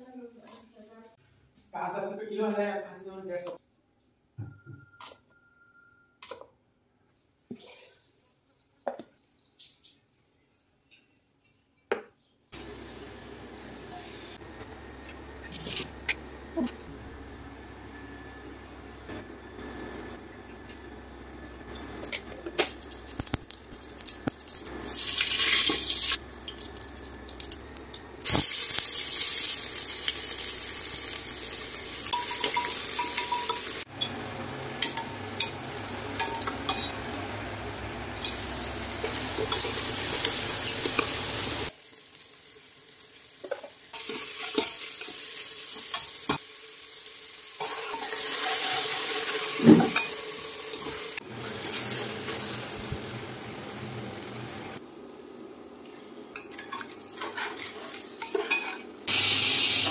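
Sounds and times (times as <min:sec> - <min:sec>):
food sizzling in hot oil: 0:21.6 - 0:54.8, 0:56.5 - 0:59.9.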